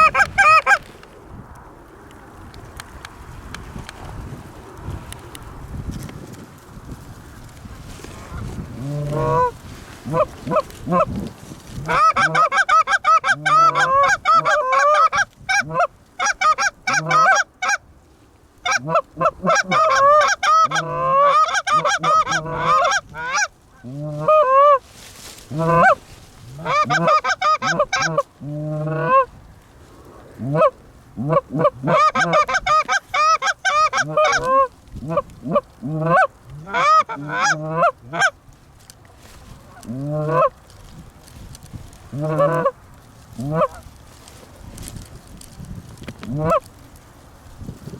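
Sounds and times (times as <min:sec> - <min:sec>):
geese honking: 0:00.0 - 0:00.9, 0:08.3 - 0:11.1, 0:11.8 - 0:17.8, 0:18.6 - 0:24.8, 0:25.5 - 0:29.3, 0:30.4 - 0:38.4, 0:39.7 - 0:40.5, 0:42.1 - 0:42.8, 0:43.4 - 0:43.8, 0:46.2 - 0:46.7.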